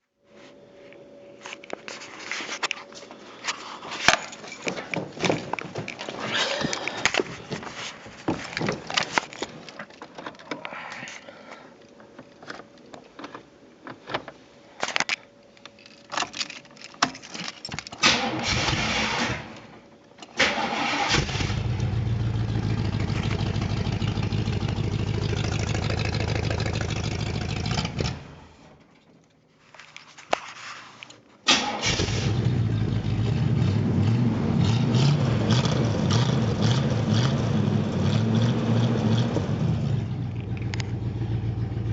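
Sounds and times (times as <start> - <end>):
car engine starting and running: 18.0 - 19.7, 20.4 - 28.6, 31.5 - 41.9.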